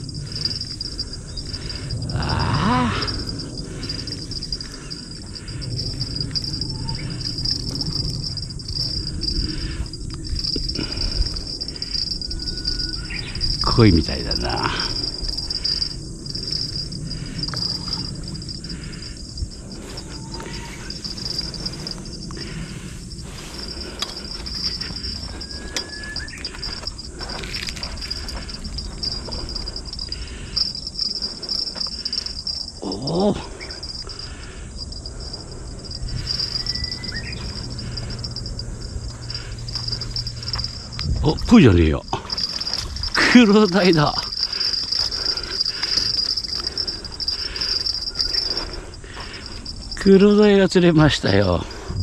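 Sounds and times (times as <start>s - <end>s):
low rumbling noise: 0.0s - 50.0s
insects trilling: 0.0s - 52.0s.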